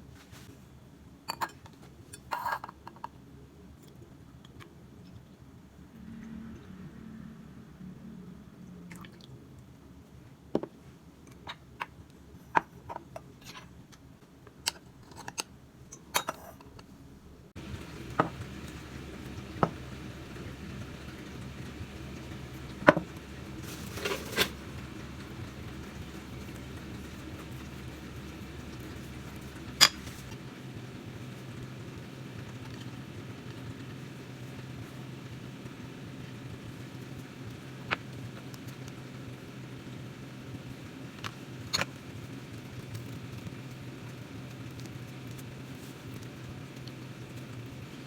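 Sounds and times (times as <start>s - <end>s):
steady low hum: 5.2s - 11.2s, 17.1s - 48.0s.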